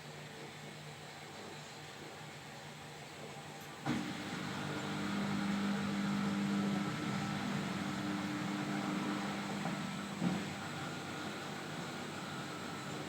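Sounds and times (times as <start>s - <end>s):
washing machine motor hum: 3.2s - 13.0s.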